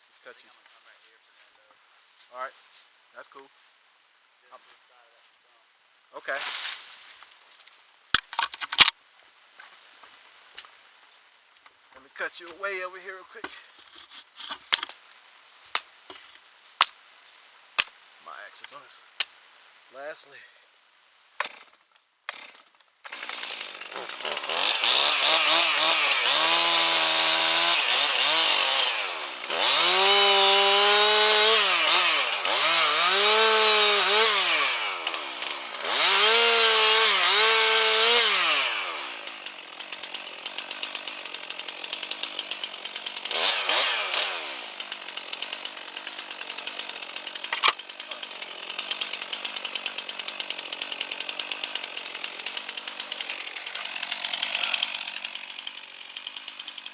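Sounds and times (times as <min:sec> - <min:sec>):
chainsaw revving and cutting wood: 0:06.2 - 0:07.0, 0:21.4 - 0:56.9.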